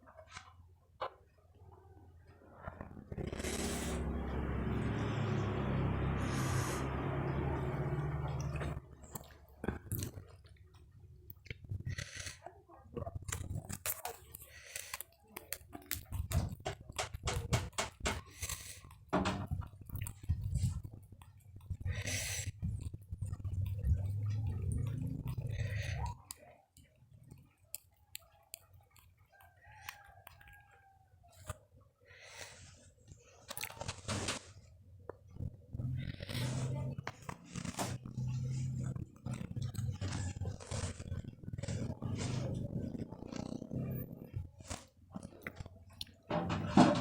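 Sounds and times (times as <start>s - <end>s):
crunching crispy snacks: 33.4s - 46.3s.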